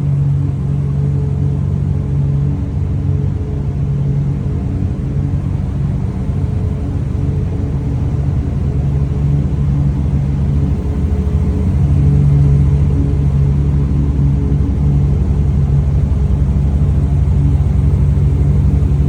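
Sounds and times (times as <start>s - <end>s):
car engine idling: 14.7s - 19.0s.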